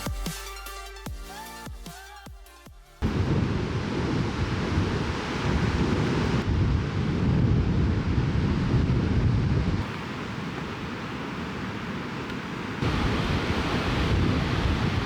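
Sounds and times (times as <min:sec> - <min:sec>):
wind buffeting microphone: 0:03.0 - 0:15.0.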